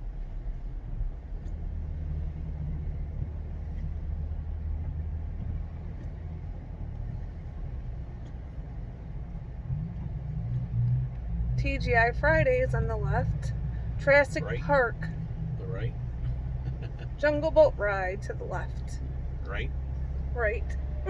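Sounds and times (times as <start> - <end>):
car engine and tyre rumble: 0.0 - 21.0
faint ticks: 0.2 - 11.4.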